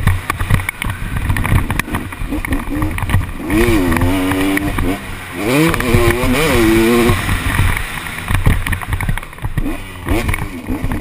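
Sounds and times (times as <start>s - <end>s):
motocross engine revving: 0.0s - 11.0s.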